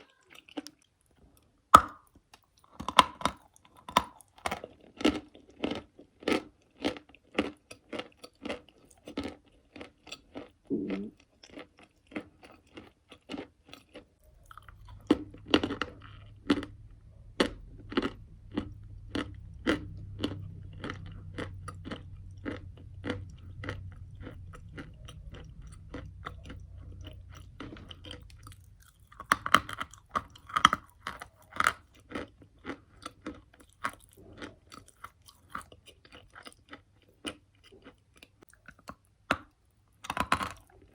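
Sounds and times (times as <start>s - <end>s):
chewing crunchy chalk: 1.9s - 40.9s.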